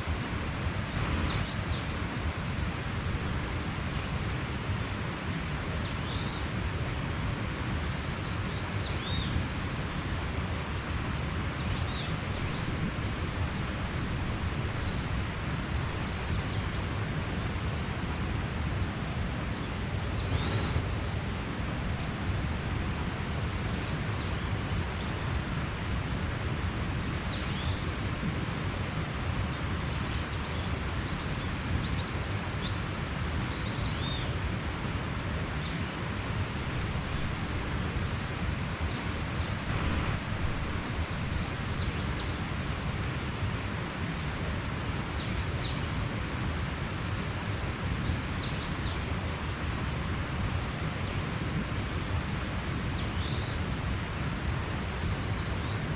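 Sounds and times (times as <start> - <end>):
stream rushing: 0.0 - 55.9
small birds chirping: 0.8 - 2.0, 10.6 - 18.6, 19.4 - 25.3, 35.5 - 43.2, 48.0 - 49.1.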